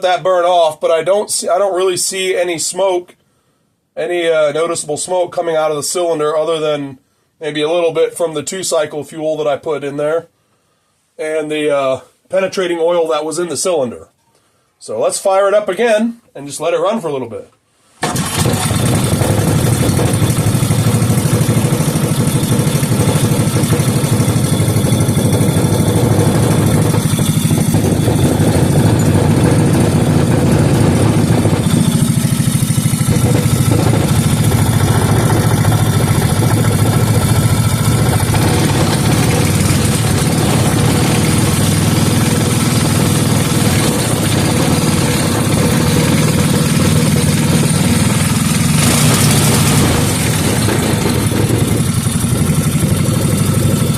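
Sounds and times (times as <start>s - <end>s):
small engine running: 18.0s - 53.9s.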